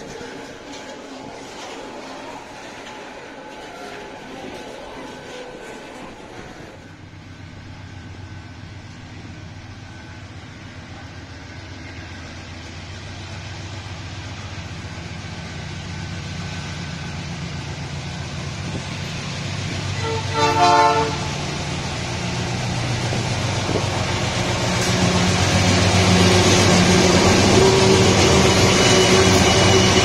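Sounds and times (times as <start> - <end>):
locomotive engine drone: 0.0 - 30.0
train wheels rumbling: 0.0 - 30.0
train horn blast: 19.8 - 21.4.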